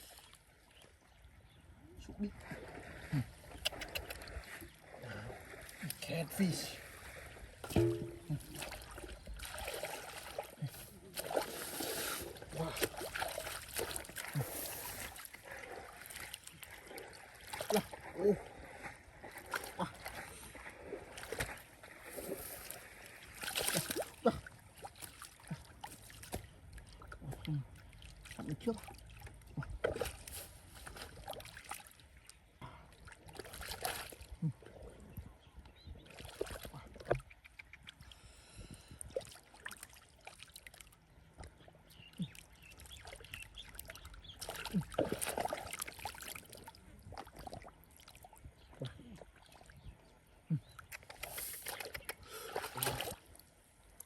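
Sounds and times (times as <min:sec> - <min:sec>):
muddy water splashing: 0:00.0 - 0:54.0
small wet clicks: 0:03.5 - 0:04.4, 0:36.4 - 0:38.1, 0:50.6 - 0:54.0.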